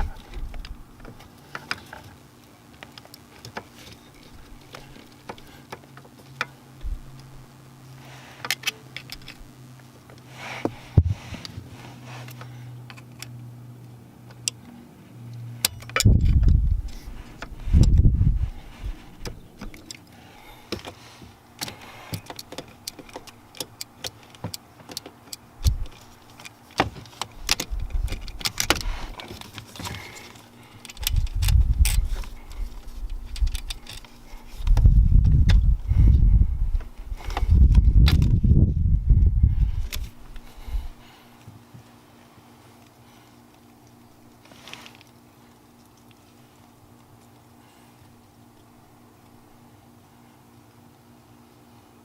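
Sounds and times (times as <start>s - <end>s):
low steady hum: 0.0s - 52.0s
dull low thumps: 16.0s - 19.5s, 34.7s - 40.0s.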